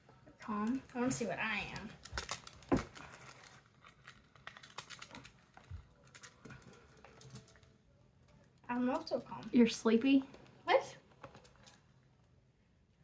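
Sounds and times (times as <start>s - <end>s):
small objects clicking and tapping: 1.7s - 9.6s.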